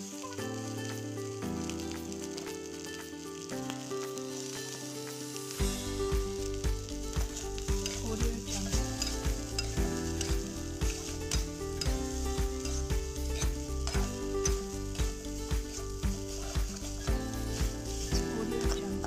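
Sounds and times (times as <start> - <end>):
background music with a beat: 0.0 - 19.0
rice sizzling in a wok: 0.0 - 19.0
spatula scraping a wok: 5.7 - 19.0.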